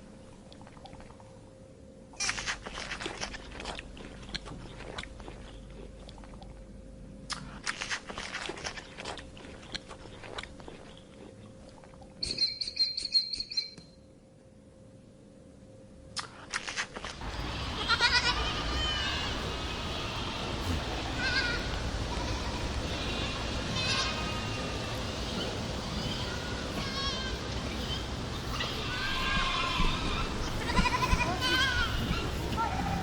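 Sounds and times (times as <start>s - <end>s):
animal bleating: 17.2s - 33.0s.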